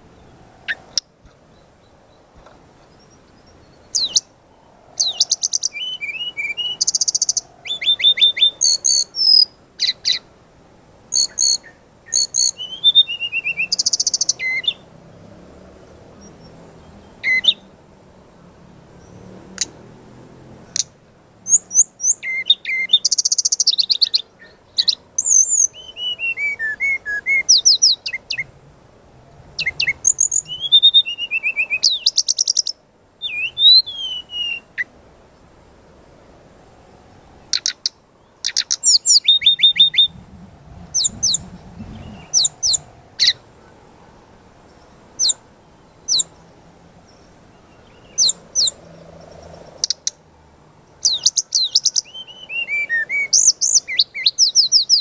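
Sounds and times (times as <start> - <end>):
bird singing rapid high notes: 2.9 - 4.3, 5.0 - 10.2, 11.1 - 14.9, 21.5 - 28.5, 29.6 - 34.9, 37.5 - 40.2, 40.9 - 43.4, 51.0 - 55.0.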